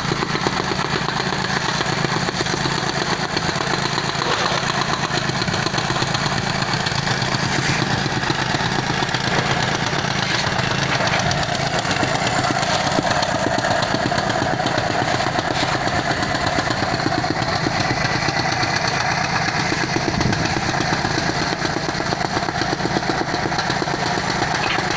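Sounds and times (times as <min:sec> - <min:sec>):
small engine pulsing: 0:00.0 - 0:24.9.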